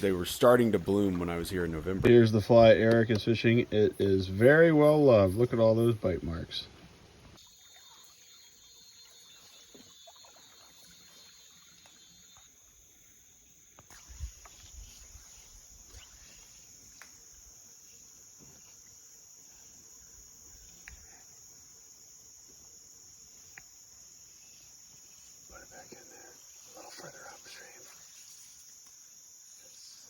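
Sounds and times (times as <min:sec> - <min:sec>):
high-pitched insect drone: 0:07.4 - 0:30.0.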